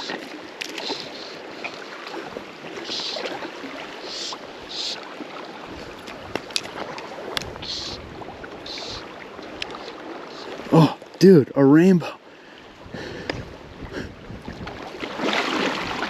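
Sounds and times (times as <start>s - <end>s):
fish splashing: 0.0s - 10.8s, 14.7s - 16.0s
river water running: 0.0s - 16.0s.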